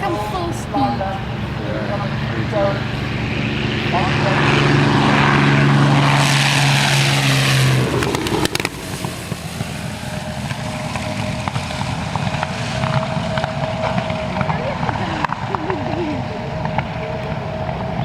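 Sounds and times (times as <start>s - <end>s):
propeller aircraft engine drone: 0.0s - 18.0s.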